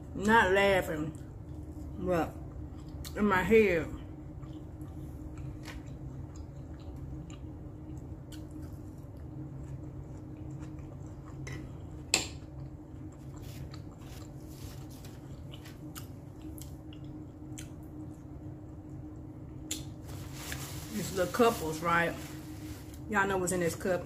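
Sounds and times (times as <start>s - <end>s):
steady low hum: 0.0s - 24.0s
chewing with wet mouth clicks: 2.7s - 3.2s, 4.3s - 14.4s, 15.3s - 18.2s.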